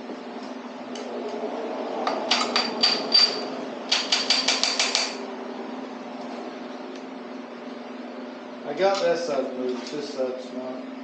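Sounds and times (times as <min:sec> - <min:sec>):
hammer tapping metal: 0:02.3 - 0:05.2.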